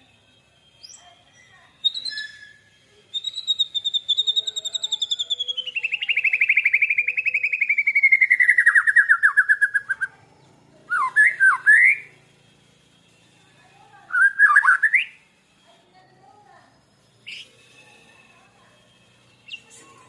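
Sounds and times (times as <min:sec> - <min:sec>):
lovebird rattling trill: 0:01.8 - 0:10.1.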